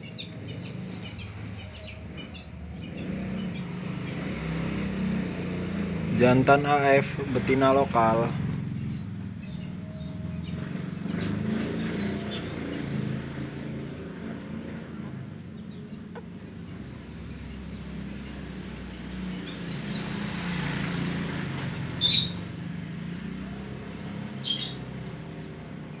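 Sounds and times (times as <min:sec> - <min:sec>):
canaries chirping: 0:00.0 - 0:26.0
loud high-pitched bird calls: 0:06.2 - 0:25.5.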